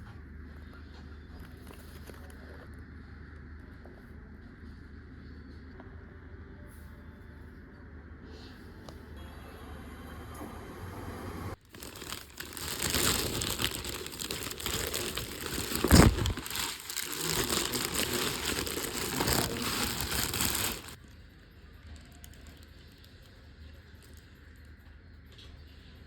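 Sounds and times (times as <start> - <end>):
packaging crinkling and rustling: 11.6 - 21.0.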